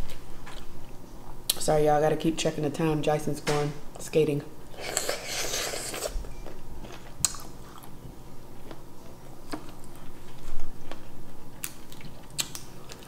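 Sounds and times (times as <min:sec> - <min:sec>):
chewing shrimp: 0:08.6 - 0:13.0.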